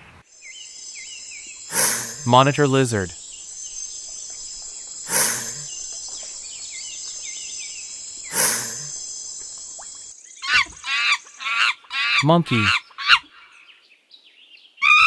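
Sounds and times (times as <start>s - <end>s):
insects chirping: 0.3s - 13.7s
lizard hissing: 1.7s - 2.3s, 5.0s - 5.9s, 8.2s - 9.3s, 10.4s - 13.5s.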